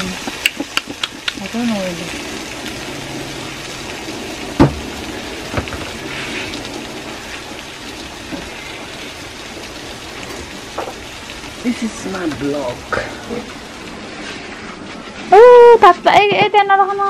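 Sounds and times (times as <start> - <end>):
potato and egg sizzling in pan: 0.0 - 17.0
sharp knock: 4.6 - 4.8.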